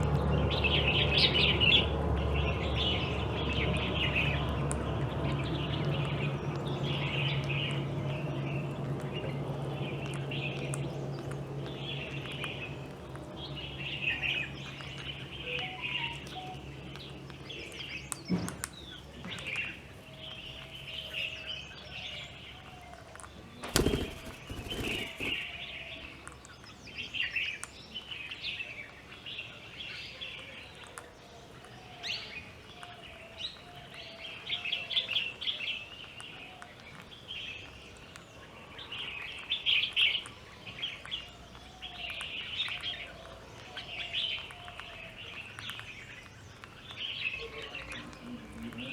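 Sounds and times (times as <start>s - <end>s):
birds chirping: 0.3s - 48.9s
steady low hum: 23.6s - 25.7s.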